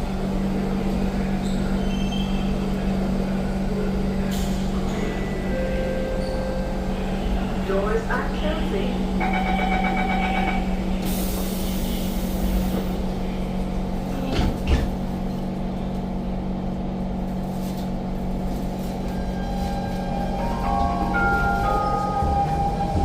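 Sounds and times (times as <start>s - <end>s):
train equipment hum: 2.6s - 23.0s.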